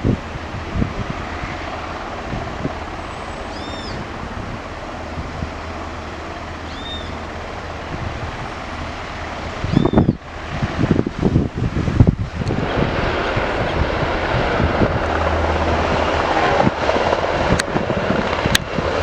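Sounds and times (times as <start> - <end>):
outdoor background rumble: 0.0 - 19.0
wind buffeting microphone: 0.0 - 19.0
bird calling: 3.0 - 4.8, 5.5 - 7.9, 9.6 - 10.3.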